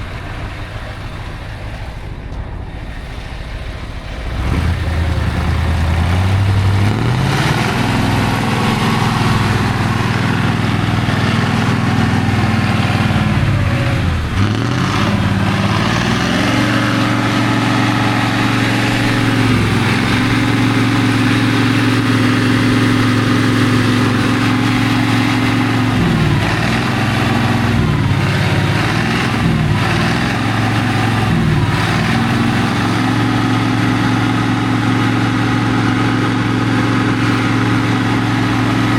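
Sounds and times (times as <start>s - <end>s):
truck engine revving hard: 0.0s - 38.9s.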